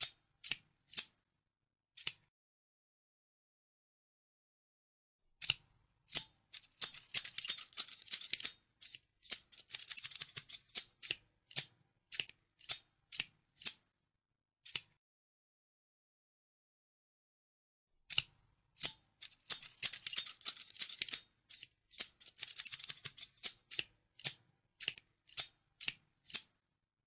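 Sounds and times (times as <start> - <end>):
scissors snipping: 0.0 - 1.2, 2.0 - 2.3, 5.4 - 13.8, 14.6 - 15.0, 18.1 - 26.6.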